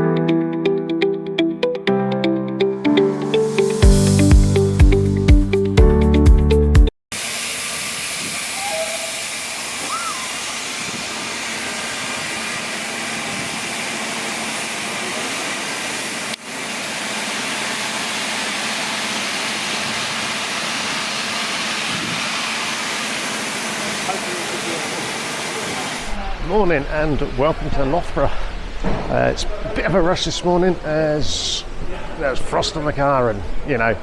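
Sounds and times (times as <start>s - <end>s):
steam hissing from locomotive: 7.2s - 33.2s.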